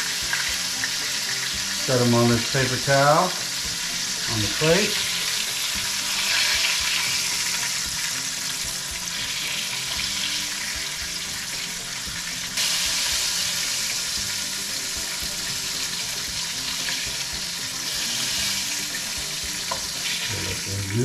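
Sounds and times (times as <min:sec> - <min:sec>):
meat sizzling in oil: 0:00.0 - 0:21.0.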